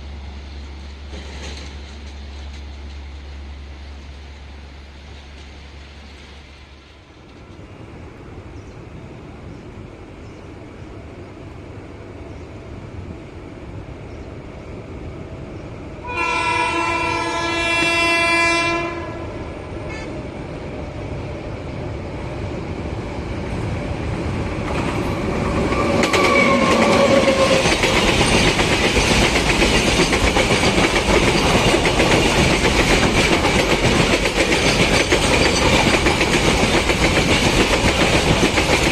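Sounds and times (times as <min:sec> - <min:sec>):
train rumble: 0:00.0 - 0:38.9
train wheels clickety-clack: 0:00.6 - 0:03.3, 0:05.0 - 0:06.4, 0:22.3 - 0:38.9
locomotive horn blast: 0:16.0 - 0:20.2.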